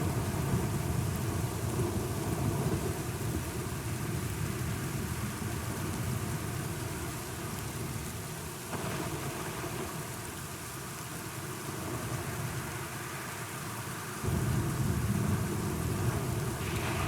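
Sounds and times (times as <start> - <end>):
rain falling: 0.0 - 17.0
thunder rumbling: 14.2 - 17.0.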